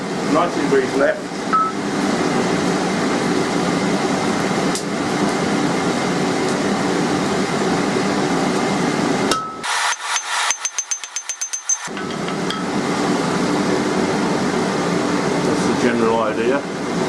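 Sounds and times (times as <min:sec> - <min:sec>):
forge blower rushing air: 0:00.0 - 0:10.9, 0:11.8 - 0:17.0
hammer blows on anvil: 0:09.3 - 0:12.8.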